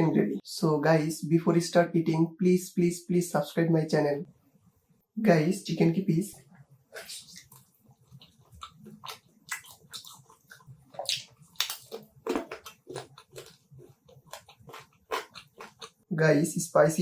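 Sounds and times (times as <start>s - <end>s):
person chewing food: 6.9s - 16.1s.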